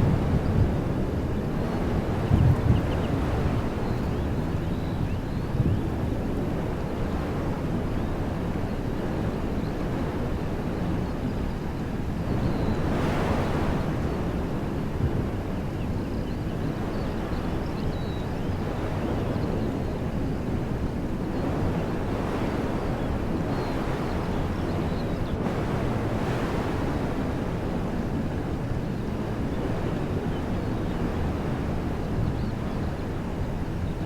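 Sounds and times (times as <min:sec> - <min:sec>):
wind through trees: 0:00.0 - 0:34.0.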